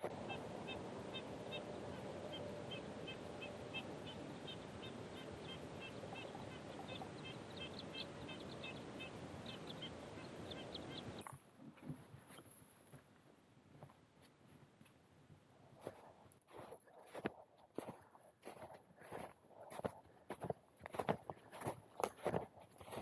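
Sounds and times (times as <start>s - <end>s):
birds chirping: 0.0s - 12.6s, 15.8s - 23.0s.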